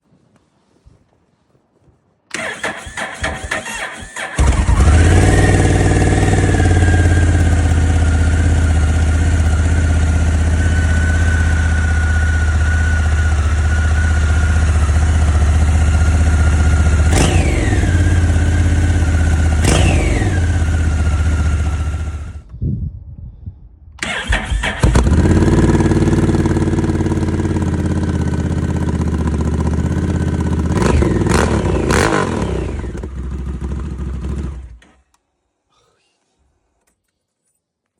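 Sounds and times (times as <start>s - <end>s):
motorcycle throttle blips: 2.3s - 22.5s
motorcycle engine idling: 2.4s - 22.4s, 24.9s - 34.8s.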